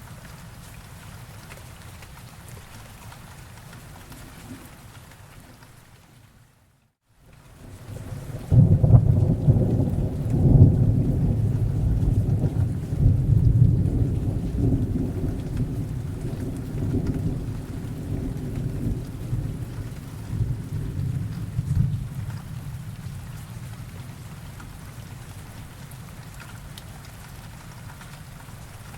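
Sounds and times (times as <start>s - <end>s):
steady rain hiss: 0.0s - 28.9s
thunder rolling: 8.0s - 23.5s.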